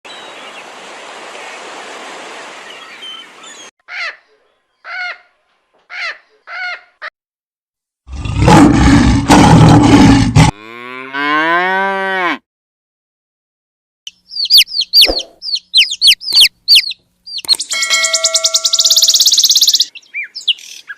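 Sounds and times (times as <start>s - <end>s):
loud rough animal call: 8.1s - 12.4s.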